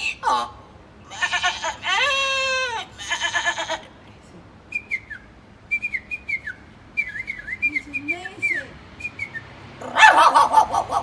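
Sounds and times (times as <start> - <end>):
man imitating bleat: 1.1 - 3.9
high whistled chirps: 4.7 - 9.5.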